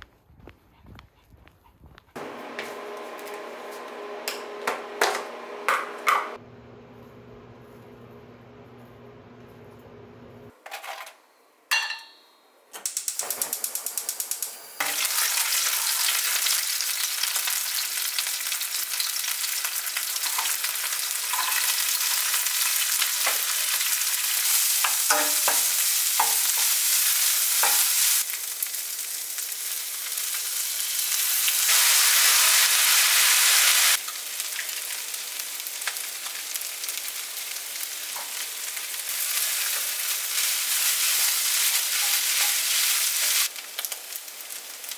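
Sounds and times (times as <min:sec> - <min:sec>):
stirring knocks: 0:04.2 - 0:06.4
food sizzling in a pan: 0:14.3 - 0:44.9.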